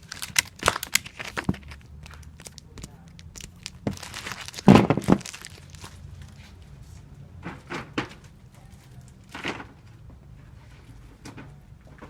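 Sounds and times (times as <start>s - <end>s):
sticky tape tearing: 0.0s - 6.0s
paper crinkling: 0.0s - 6.6s.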